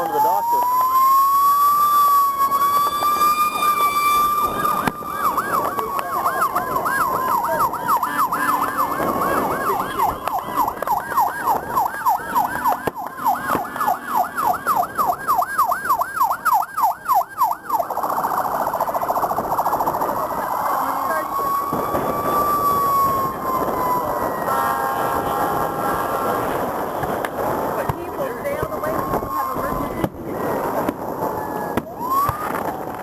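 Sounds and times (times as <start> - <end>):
ambulance siren wailing and yelping: 0.0 - 33.0.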